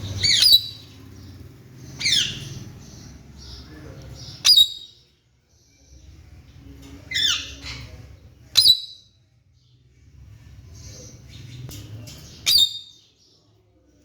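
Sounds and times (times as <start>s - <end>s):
parakeet squawking: 0.2s - 0.9s, 1.9s - 2.6s.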